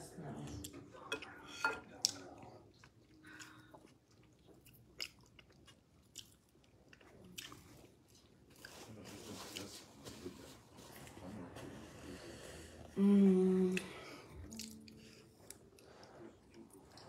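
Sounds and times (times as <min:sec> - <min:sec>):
person chewing: 0:01.2 - 0:08.9, 0:13.8 - 0:17.0.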